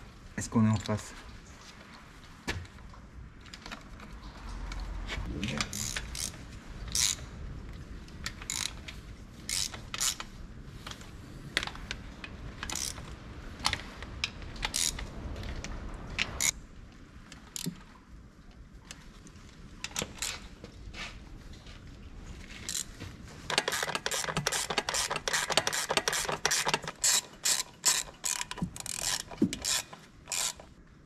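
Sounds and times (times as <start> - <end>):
socket ratchet clicking: 5.7 - 7.2, 9.5 - 10.2, 12.6 - 13.0, 23.5 - 30.7.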